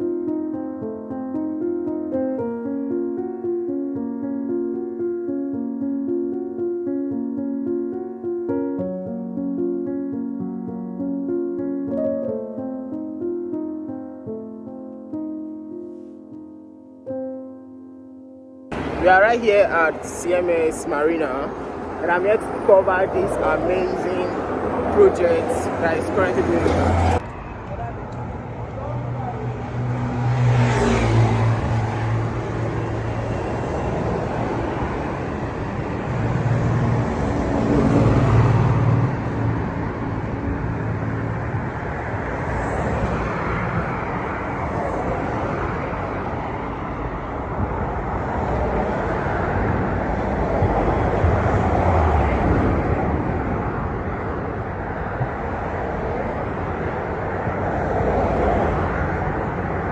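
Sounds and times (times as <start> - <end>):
road traffic noise: 18.7 - 59.9
vehicles passing: 18.7 - 59.9.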